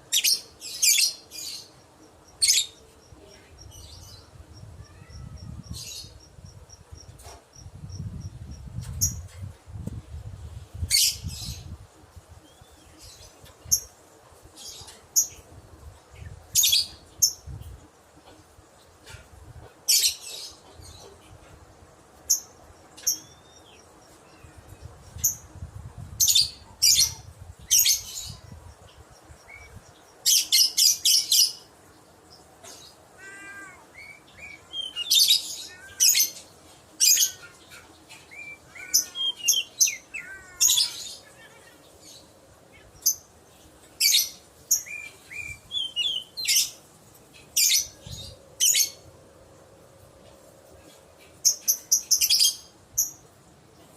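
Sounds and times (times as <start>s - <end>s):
lovebird chirping: 33.2s - 36.4s, 37.1s - 43.3s, 44.0s - 46.8s.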